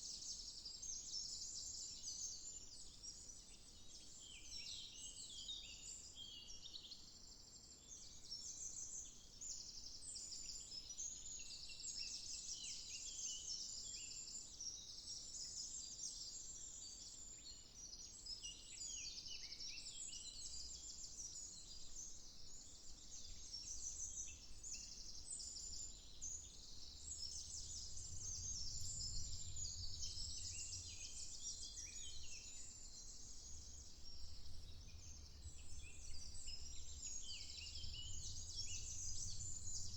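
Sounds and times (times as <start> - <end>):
small birds chirping and trilling: 0.1 - 39.9
faint low rumble: 25.1 - 39.9.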